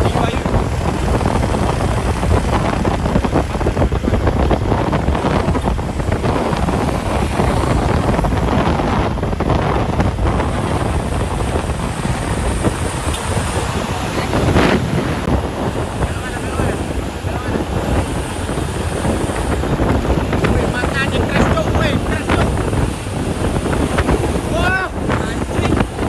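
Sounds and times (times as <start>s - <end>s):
vehicles passing at speed: 0.0s - 26.0s
wind buffeting microphone: 0.0s - 26.0s.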